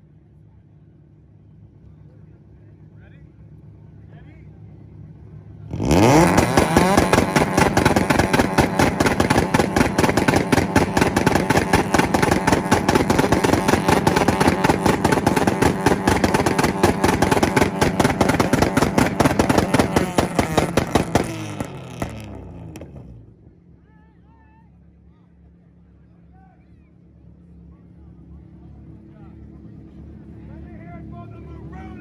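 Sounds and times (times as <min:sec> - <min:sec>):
car engine revving: 0:05.6 - 0:23.4
rev limiter pops and bangs: 0:05.7 - 0:23.3.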